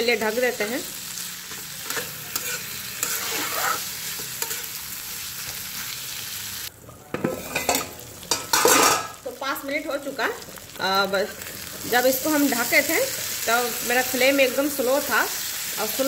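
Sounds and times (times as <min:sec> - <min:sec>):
fat sizzling in a pan: 0:00.0 - 0:16.0
utensils knocking against pan: 0:07.2 - 0:09.1.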